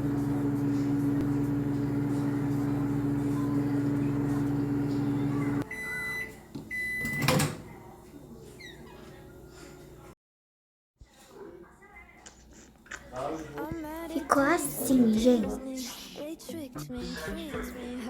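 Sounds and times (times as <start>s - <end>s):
microwave oven humming: 0.0s - 10.1s.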